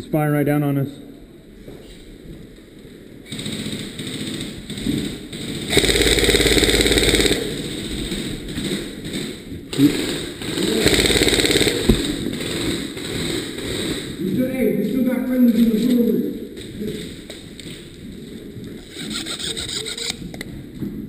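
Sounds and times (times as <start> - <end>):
electric toy gun buzzing bursts: 5.7 - 7.4, 10.0 - 12.0
sharp clicks: 8.4 - 12.5.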